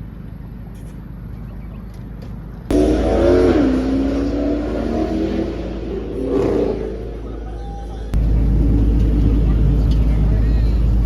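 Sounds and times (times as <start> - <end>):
car engine revving: 2.7 - 10.0.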